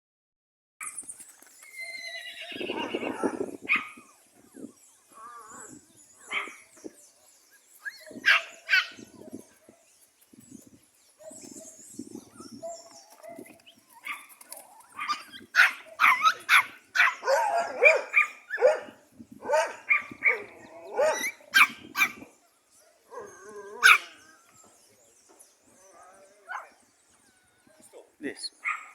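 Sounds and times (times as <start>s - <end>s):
dog yelping: 14.9s - 22.2s, 23.2s - 24.2s
dog barking: 15.0s - 22.2s, 23.1s - 24.2s, 26.5s - 26.7s, 28.6s - 28.9s.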